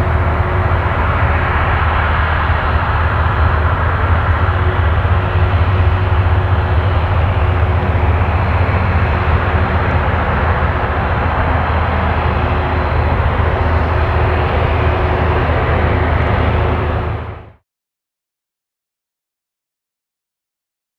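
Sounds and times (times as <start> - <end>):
jet engine rumble: 0.0 - 17.6.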